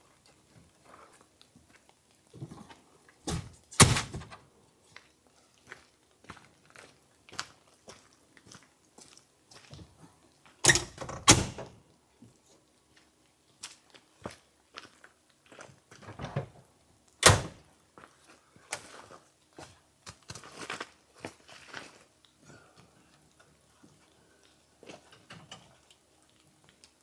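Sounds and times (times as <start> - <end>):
sharp thump: 3.3 - 4.4.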